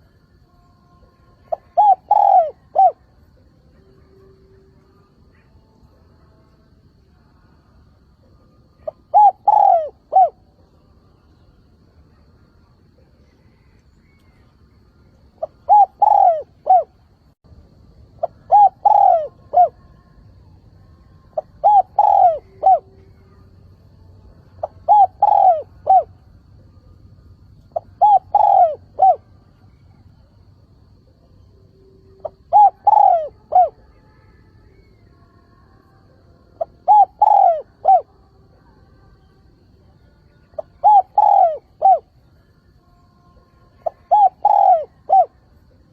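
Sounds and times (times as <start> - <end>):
dove cooing: 1.4 - 3.1, 8.2 - 10.6, 15.4 - 17.3, 18.2 - 20.1, 21.3 - 23.5, 24.5 - 26.3, 27.6 - 30.0, 32.1 - 34.0, 36.6 - 38.2, 40.6 - 42.1, 43.8 - 45.4.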